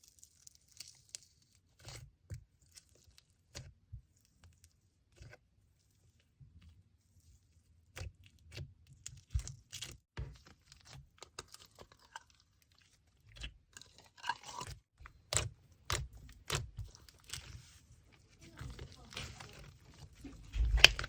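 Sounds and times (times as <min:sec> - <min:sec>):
packaging clicks and crinkles: 0:13.8 - 0:21.0.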